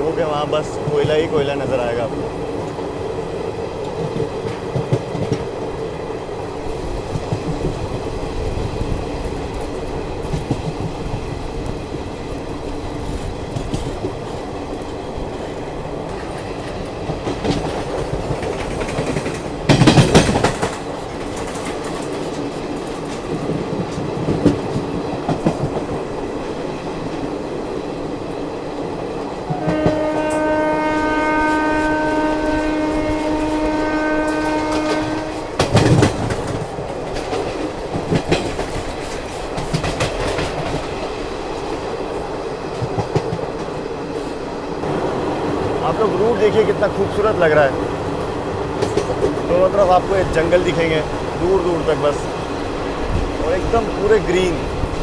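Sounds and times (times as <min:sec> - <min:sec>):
train wheels rumbling on rails: 0:00.0 - 0:55.0
train horn blast: 0:29.5 - 0:35.7.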